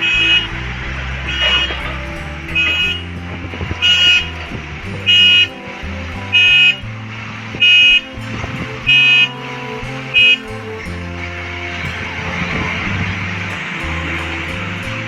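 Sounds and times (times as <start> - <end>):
reversing alarm beeping: 5.1 - 5.6, 7.6 - 8.2, 8.8 - 9.4.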